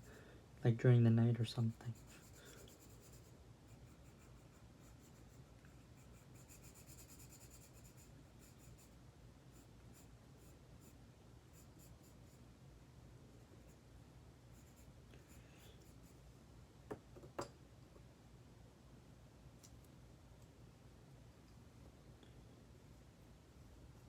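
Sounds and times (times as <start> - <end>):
pen scratching on paper: 1.7 - 12.4, 14.5 - 14.9.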